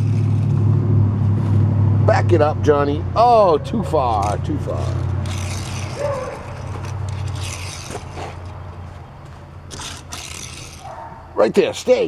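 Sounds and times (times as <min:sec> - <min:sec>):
toy car rolling and scraping: 0:00.0 - 0:00.7, 0:03.7 - 0:12.0
steady low hum: 0:00.0 - 0:12.0.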